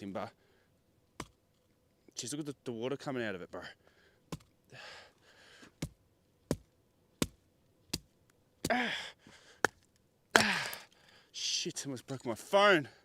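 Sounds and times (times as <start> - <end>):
axe chopping wood: 1.2 - 1.4, 4.3 - 4.5, 5.8 - 8.8.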